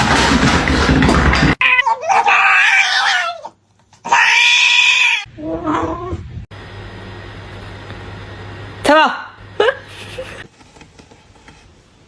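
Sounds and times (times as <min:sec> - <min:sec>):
cat meowing: 0:01.6 - 0:06.2.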